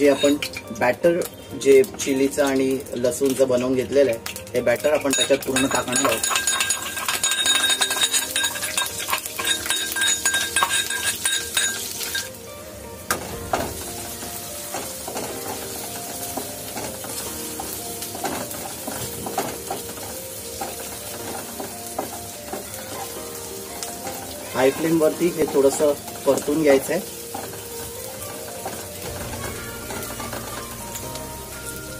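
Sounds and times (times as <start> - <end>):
garlic sizzling in hot oil: 0.0 - 31.9
spatula scraping and knocking pan: 5.1 - 12.3, 13.1 - 23.2.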